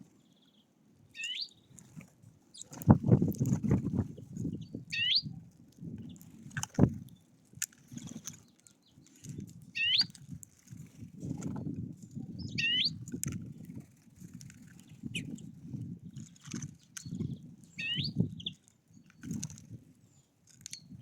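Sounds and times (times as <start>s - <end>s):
songbird upward-sweeping call: 1.2s - 1.6s, 5.0s - 5.2s, 9.8s - 10.1s, 12.5s - 13.0s, 17.8s - 18.2s.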